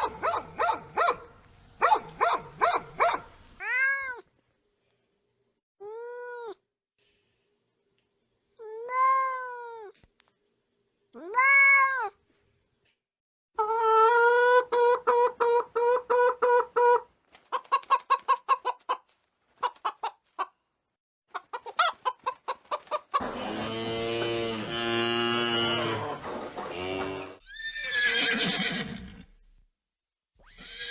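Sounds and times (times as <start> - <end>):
cat meowing: 3.6 - 4.3, 8.6 - 10.0, 11.2 - 12.2
hen clucking: 13.6 - 20.6, 21.3 - 24.8.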